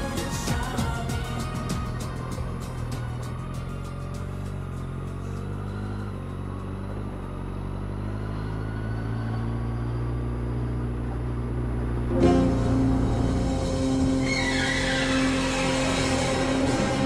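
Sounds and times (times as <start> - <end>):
music: 0.0 - 5.5, 12.1 - 17.0
motorcycle engine running: 0.0 - 17.0.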